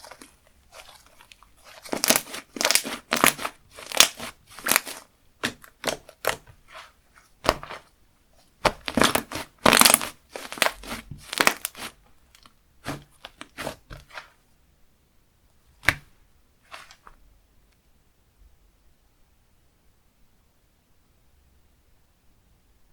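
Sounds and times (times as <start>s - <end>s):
slime squeezed crackling: 0.0s - 7.8s, 8.6s - 12.0s, 12.8s - 14.2s.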